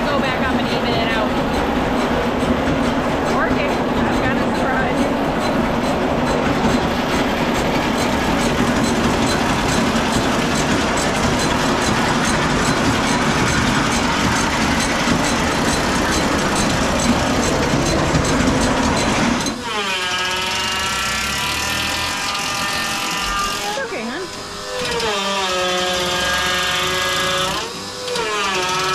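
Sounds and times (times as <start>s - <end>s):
fine rapid ticking: 0.0s - 19.6s
feed cart machinery din: 0.0s - 28.9s.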